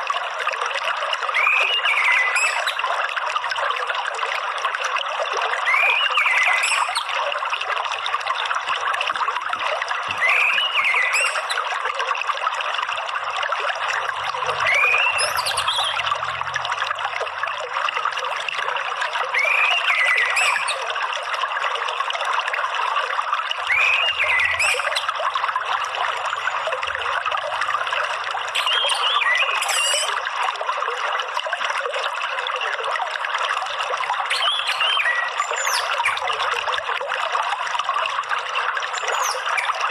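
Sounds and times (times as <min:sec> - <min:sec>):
water trickling: 0:00.0 - 0:39.9
bird whistled call: 0:01.4 - 0:02.7, 0:10.2 - 0:11.6, 0:14.6 - 0:16.1, 0:19.4 - 0:20.8, 0:23.7 - 0:25.0, 0:28.6 - 0:30.2.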